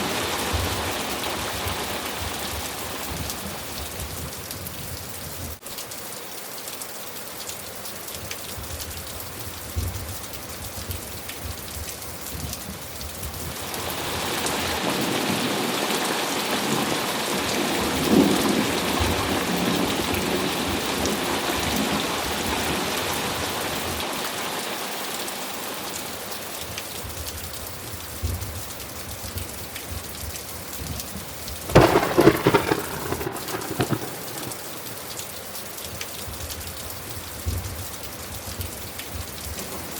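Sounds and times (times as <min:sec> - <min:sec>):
steady rain falling: 0:00.0 - 0:39.9
rolling thunder: 0:31.7 - 0:35.0
sharp thunderclap: 0:31.7 - 0:35.0.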